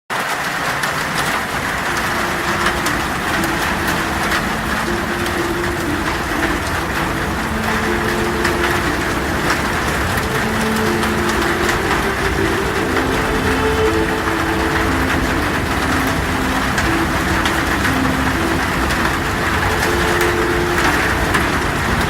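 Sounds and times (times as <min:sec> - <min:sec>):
heavy rain on a metal roof: 0:00.1 - 0:22.0
low storm rumble: 0:00.4 - 0:22.0.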